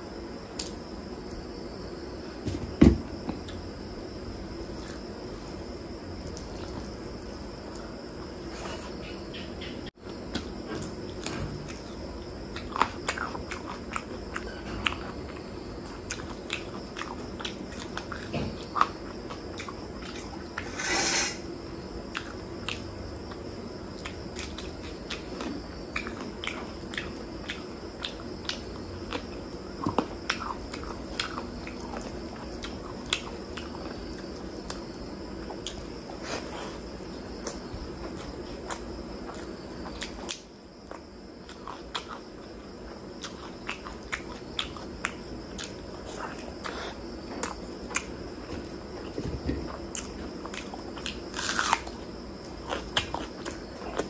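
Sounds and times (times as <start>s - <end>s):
close chewing with mouth clicks: 10.1s - 20.7s, 22.1s - 54.0s.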